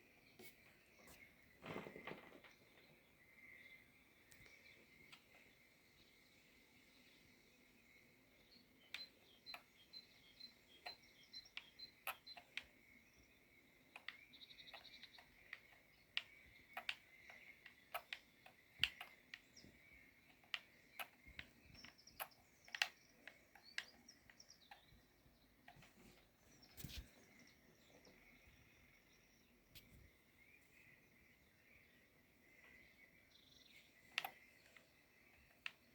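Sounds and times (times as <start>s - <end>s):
bird chirping: 0.0s - 35.9s
sharp clicks: 14.0s - 25.0s, 34.0s - 35.9s.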